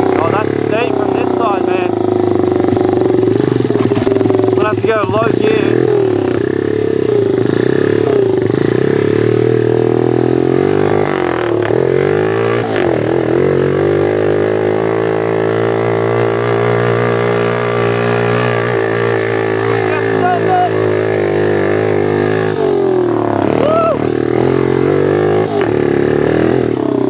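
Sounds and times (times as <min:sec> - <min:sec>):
motorbike engine running under load: 0:00.0 - 0:27.0.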